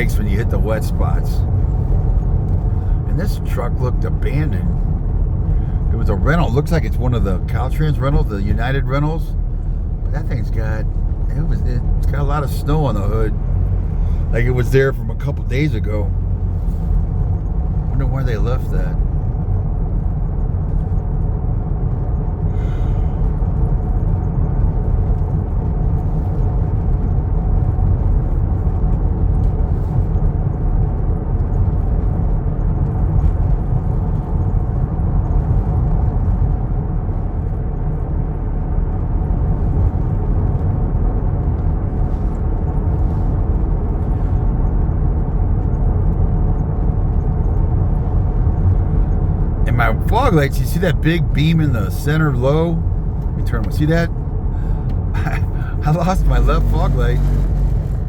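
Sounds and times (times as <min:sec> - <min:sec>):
truck engine and tyres rumbling: 0:00.0 - 0:58.0.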